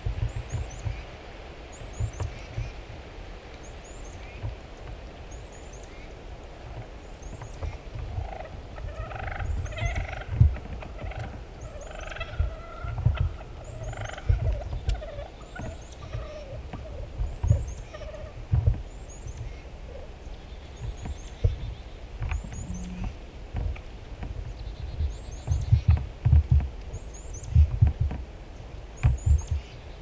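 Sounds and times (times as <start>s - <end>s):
wind thumps on microphone: 0.0s - 30.0s
turkey gobbling: 8.3s - 17.0s, 17.9s - 18.4s
small bird chirping: 20.4s - 23.2s.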